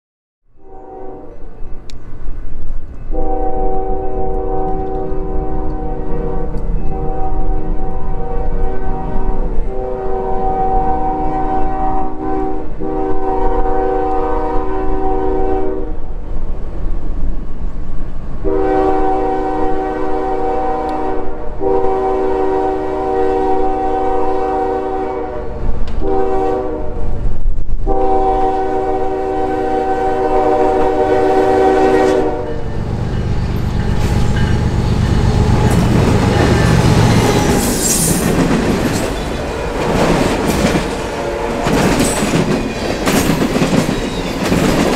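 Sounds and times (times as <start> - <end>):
locomotive air horn blasts: 0.6 - 1.5, 3.1 - 16.0, 18.4 - 27.1, 27.8 - 38.2, 41.1 - 42.0
freight cars rumbling past: 30.8 - 44.9
train wheel clatter: 32.6 - 44.9.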